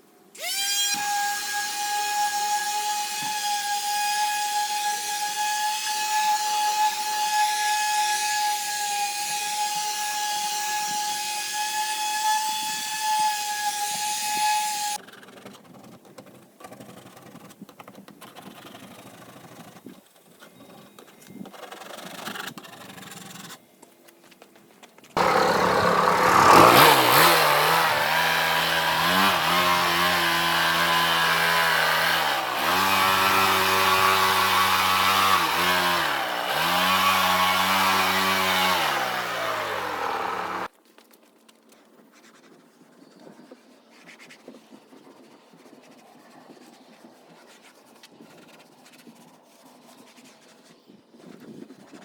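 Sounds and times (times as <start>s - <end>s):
paint sprayer motor whine: 25.2s - 40.7s.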